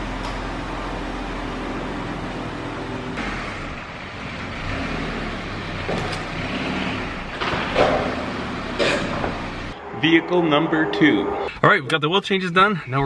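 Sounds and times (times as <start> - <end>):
compact car engine: 0.0 - 9.8
minivan engine running slowly: 0.0 - 9.8.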